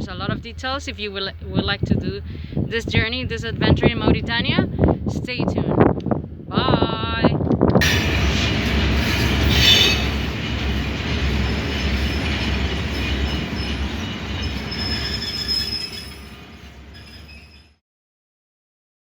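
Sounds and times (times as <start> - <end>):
freight train wagons rumbling: 0.0 - 17.8
faint high wheel squeal: 9.0 - 10.3, 11.3 - 17.8.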